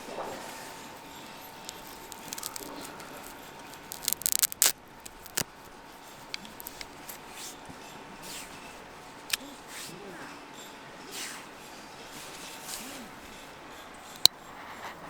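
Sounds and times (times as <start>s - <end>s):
sharp handling clicks and crackles: 0.0s - 7.9s.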